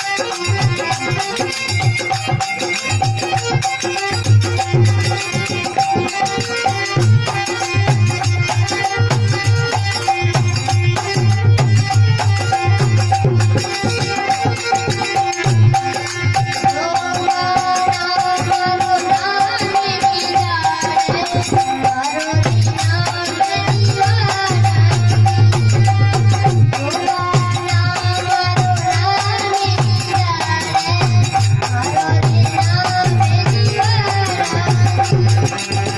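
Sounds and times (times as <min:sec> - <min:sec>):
fast rattling percussion: 0:00.0 - 0:35.9.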